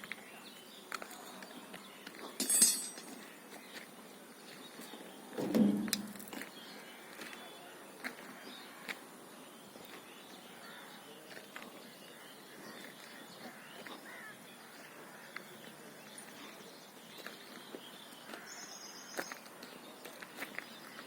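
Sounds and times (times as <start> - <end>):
faint bird calls: 9.7 - 21.0.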